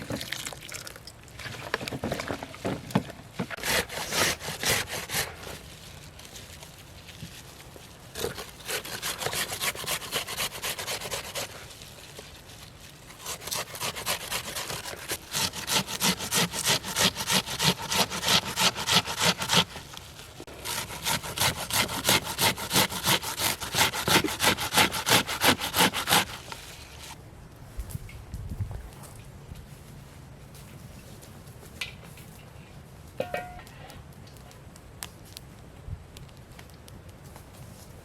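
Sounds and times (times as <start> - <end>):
hand saw cutting wood: 3.4 - 5.6, 8.2 - 11.7, 13.2 - 27.2.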